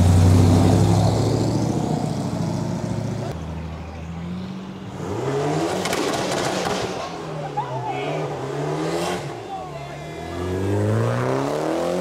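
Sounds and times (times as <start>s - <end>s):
car engine revving: 4.9s - 7.4s, 8.2s - 9.5s, 10.1s - 12.0s.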